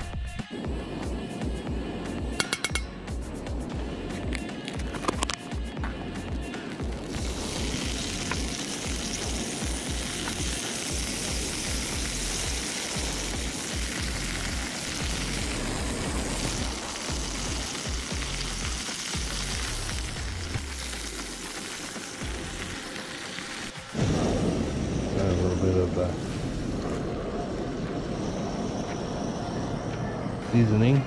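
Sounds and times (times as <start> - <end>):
shrimp frying in a pan: 6.8 - 23.9
butter sizzling in a wok: 6.8 - 24.0.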